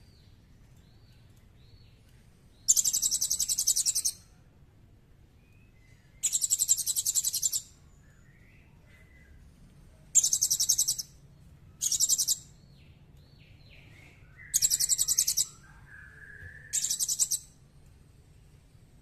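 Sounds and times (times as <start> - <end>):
high-pitched bird trills: 2.7 - 4.3, 6.2 - 7.7, 10.2 - 11.2, 11.8 - 12.5, 14.4 - 17.6
low whistled bird notes: 13.9 - 17.6.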